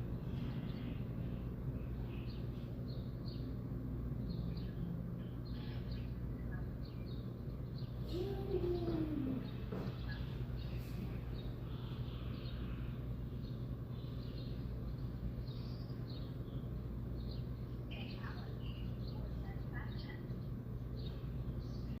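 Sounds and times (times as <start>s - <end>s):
birds chirping: 0.0s - 22.0s
steady low hum: 0.0s - 22.0s
low falling bird call: 8.0s - 11.1s.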